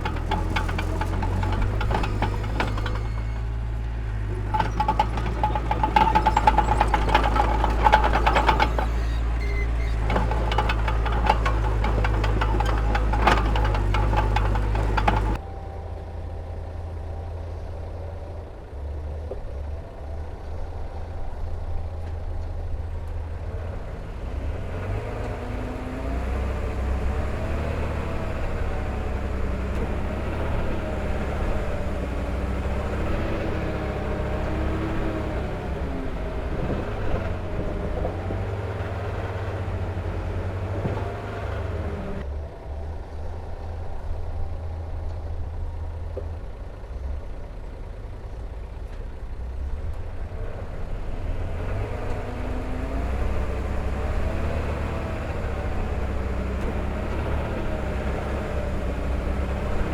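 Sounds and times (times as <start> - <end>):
machinery clattering: 0.0 - 15.4
heavy diesel engine rumbling: 0.0 - 59.9.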